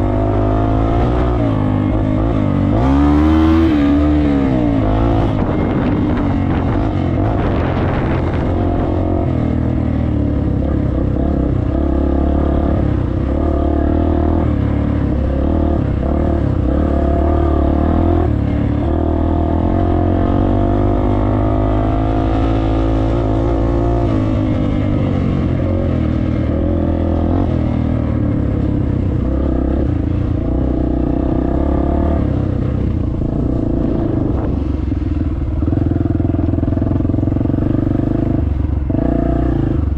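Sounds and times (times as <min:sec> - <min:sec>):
dirt bike engine revving: 0:00.0 - 0:28.6.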